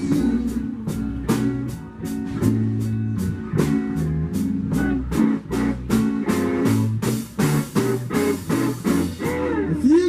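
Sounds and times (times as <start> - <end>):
person singing: 0.0 - 1.0, 9.2 - 10.0
electric guitar: 0.0 - 10.0
steady drum beat: 0.0 - 10.0
walking bass line: 0.0 - 10.0.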